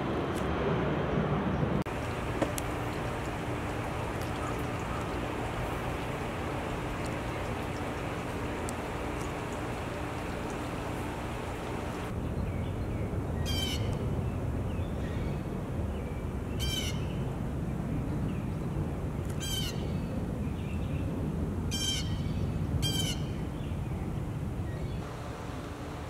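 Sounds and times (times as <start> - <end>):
bird harsh raspy calls: 4.3 - 5.4.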